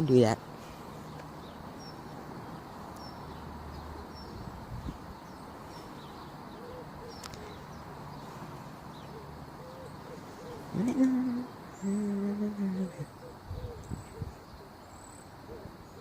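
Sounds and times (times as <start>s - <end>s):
small bird chirping: 1.0s - 8.3s
pigeon cooing: 6.6s - 7.4s, 9.1s - 14.8s.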